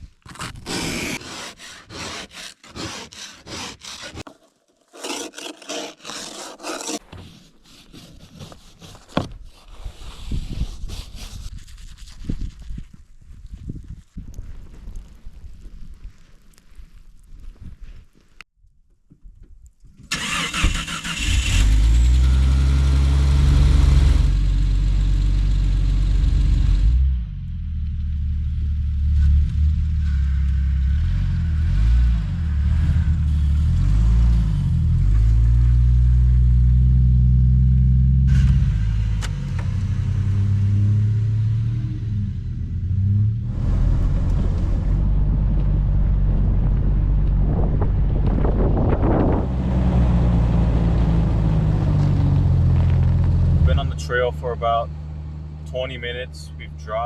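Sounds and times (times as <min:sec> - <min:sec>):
off-road vehicle engine revving: 0:20.2 - 0:57.0.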